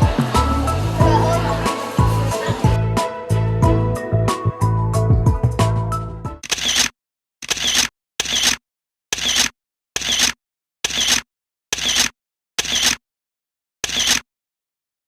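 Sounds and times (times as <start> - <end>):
camera shutter click: 6.4 - 6.9, 13.8 - 14.2.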